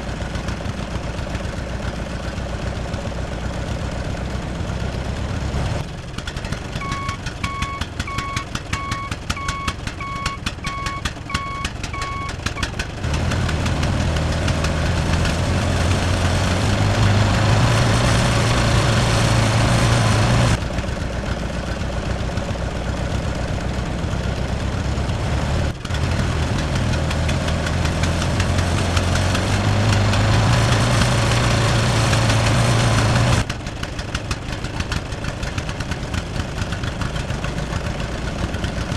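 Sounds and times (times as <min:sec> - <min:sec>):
tractor engine revving: 0:00.0 - 0:38.9
reversing alarm beeping: 0:06.8 - 0:12.7.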